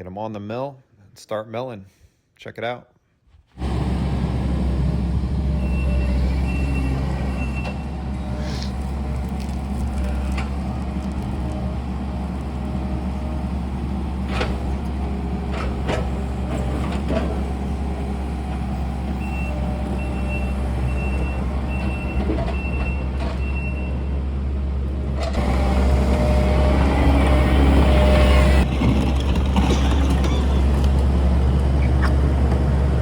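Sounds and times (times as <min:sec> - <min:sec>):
large engine running: 0:03.6 - 0:33.0.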